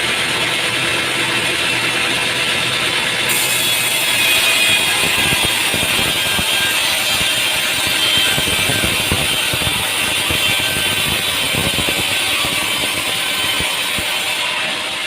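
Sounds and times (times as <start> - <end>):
sawmill machinery hiss: 3.3 - 15.0.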